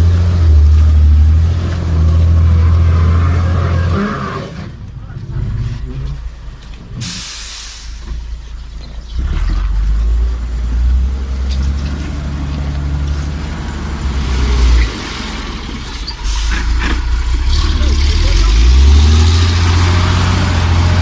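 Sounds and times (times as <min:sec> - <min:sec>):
diesel truck engine droning: 0:00.0 - 0:21.0.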